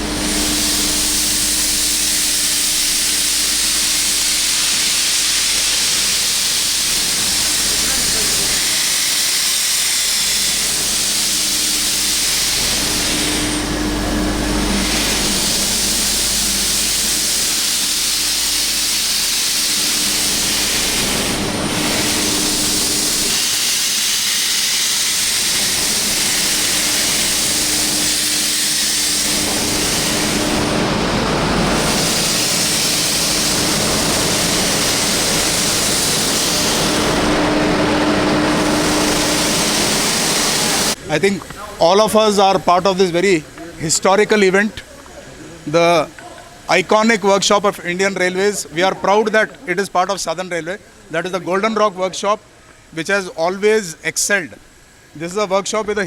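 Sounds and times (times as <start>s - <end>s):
steam locomotive hissing steam: 0.0s - 56.0s
low hum: 10.2s - 23.4s.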